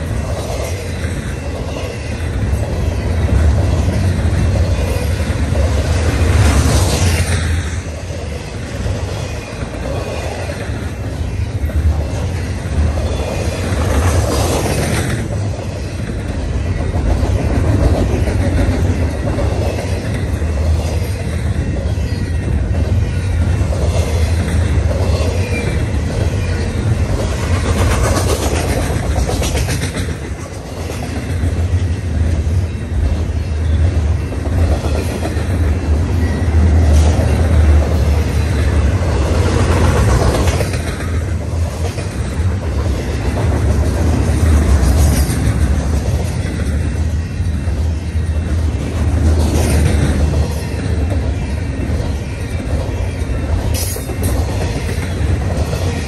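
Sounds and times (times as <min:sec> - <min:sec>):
clickety-clack over track: 0:00.0 - 0:56.0
train wheels rumbling on rails: 0:00.0 - 0:56.0.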